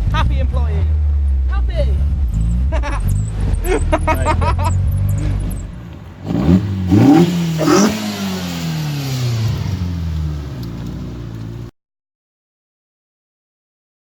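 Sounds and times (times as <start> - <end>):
car engine accelerating: 1.0 - 11.7.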